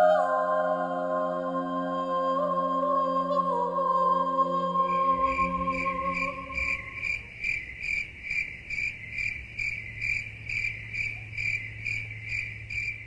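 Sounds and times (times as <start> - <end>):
ambient music chord: 0.0 - 7.2
faint low hum: 0.0 - 13.0
rhythmic insect-like chirping: 4.9 - 13.0.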